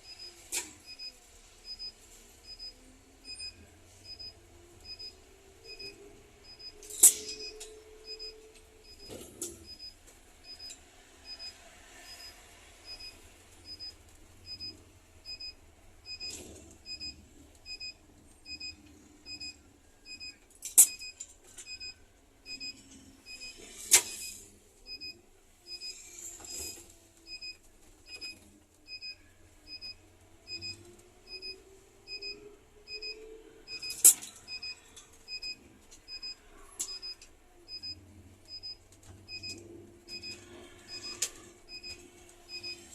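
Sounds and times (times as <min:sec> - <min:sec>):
electronic warning beeper: 0:03.3 - 0:10.7, 0:11.3 - 0:13.9, 0:25.7 - 0:42.9.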